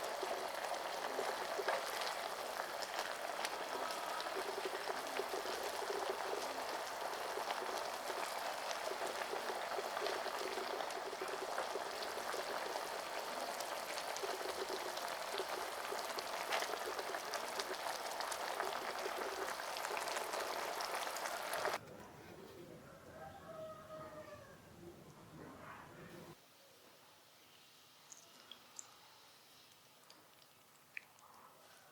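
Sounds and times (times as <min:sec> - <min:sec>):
pot boiling and bubbling: 0:00.0 - 0:21.8.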